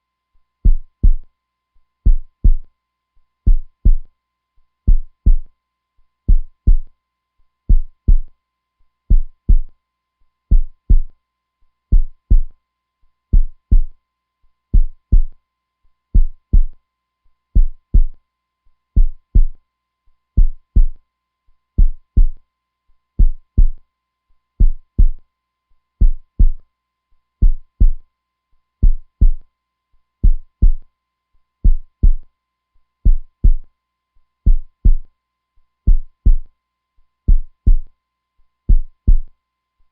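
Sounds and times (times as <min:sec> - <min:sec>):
heartbeat thumps: 0:00.6 - 0:01.2, 0:02.1 - 0:02.6, 0:03.5 - 0:04.1, 0:04.9 - 0:05.5, 0:06.3 - 0:06.9, 0:07.7 - 0:08.3, 0:09.1 - 0:09.7, 0:10.5 - 0:11.1, 0:11.9 - 0:12.5, 0:13.4 - 0:13.9, 0:14.8 - 0:15.3, 0:16.2 - 0:16.8, 0:17.6 - 0:18.2, 0:19.0 - 0:19.6, 0:20.4 - 0:21.0, 0:21.8 - 0:22.4, 0:23.2 - 0:23.8, 0:24.6 - 0:25.2, 0:26.0 - 0:26.6, 0:27.4 - 0:28.0, 0:28.8 - 0:29.4, 0:30.2 - 0:30.8, 0:31.6 - 0:32.2, 0:33.1 - 0:33.6, 0:34.5 - 0:35.0, 0:35.9 - 0:36.5, 0:37.3 - 0:37.9, 0:38.7 - 0:39.3.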